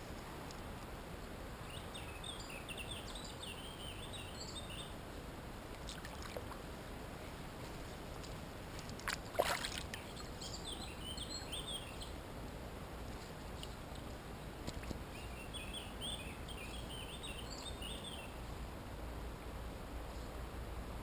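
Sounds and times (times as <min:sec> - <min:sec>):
background hiss: 0:00.0 - 0:21.0
hand splashing water: 0:09.0 - 0:10.0.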